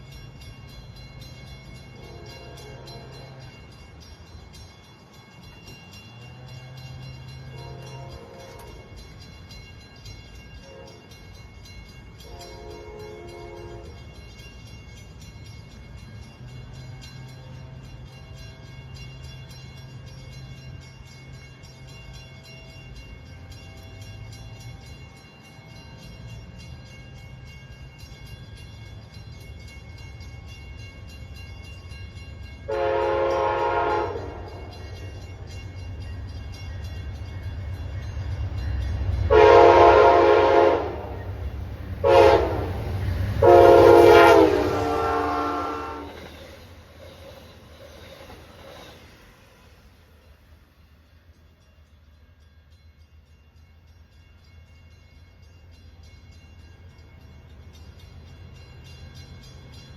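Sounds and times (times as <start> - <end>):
train rumble: 0.0 - 59.9
train horn: 2.0 - 3.6, 6.3 - 9.0, 10.6 - 11.2, 12.2 - 14.0, 32.7 - 34.9, 39.3 - 41.4, 42.0 - 46.6.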